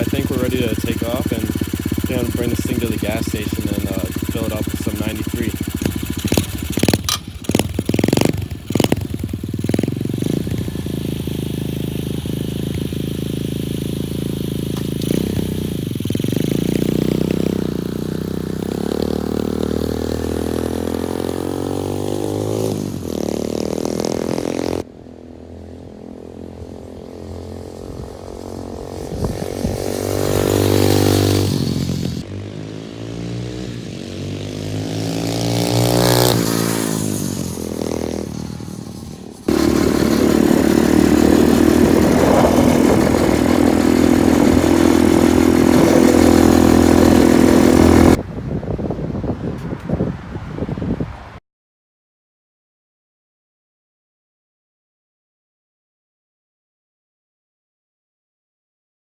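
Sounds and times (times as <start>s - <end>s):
engine clatter: 0.0s - 24.8s, 34.1s - 48.2s
motorcycle engine revving: 0.0s - 48.2s.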